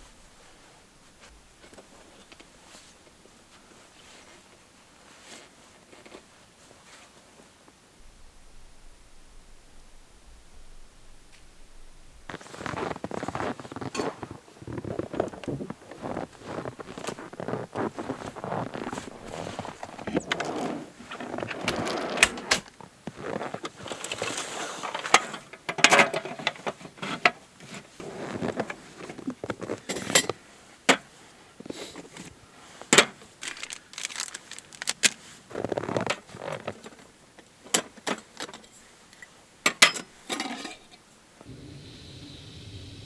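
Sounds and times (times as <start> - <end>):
rustling: 0.0 - 25.4, 31.2 - 37.2.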